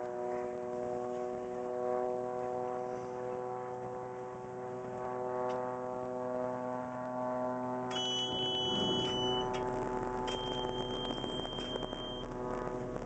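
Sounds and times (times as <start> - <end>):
propeller airplane droning: 0.0 - 13.0
high electronic beep: 7.9 - 9.6, 10.2 - 12.3.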